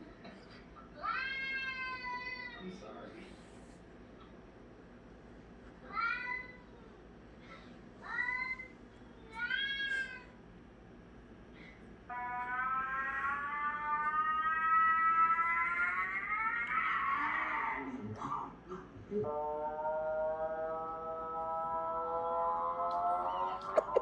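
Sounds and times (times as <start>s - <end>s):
cat meowing: 12.1s - 17.3s
cat yowl rising in pitch: 12.1s - 17.7s.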